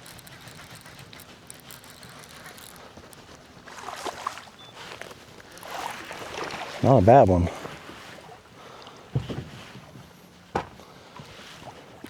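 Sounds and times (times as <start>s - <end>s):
water around a small boat: 0.0s - 12.0s
water splashing: 3.6s - 9.0s.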